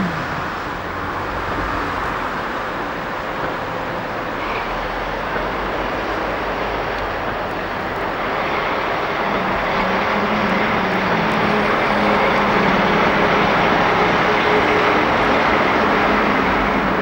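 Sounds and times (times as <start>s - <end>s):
diesel train engine drone: 0.0s - 17.0s.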